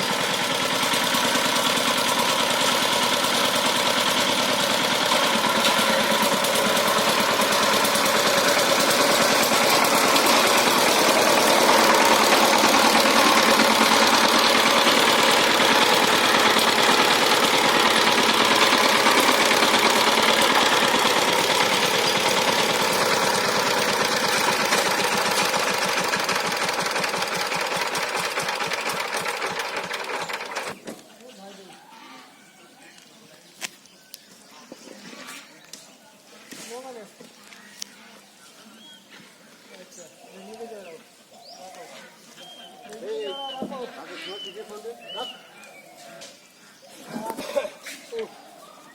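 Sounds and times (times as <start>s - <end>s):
diesel tiller engine knocking: 0.0s - 30.8s.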